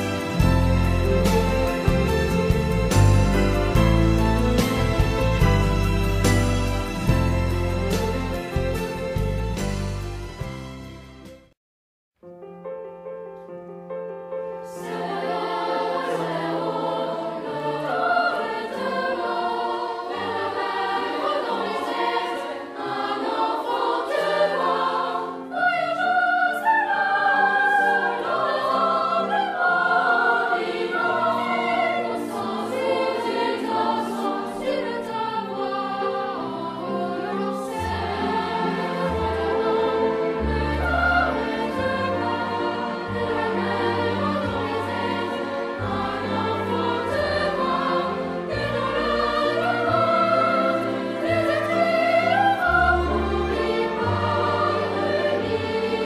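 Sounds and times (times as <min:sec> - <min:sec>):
choir singing: 0:00.0 - 0:09.2, 0:14.6 - 0:56.0
instrumental accompaniment: 0:00.0 - 0:11.6, 0:12.2 - 0:56.0.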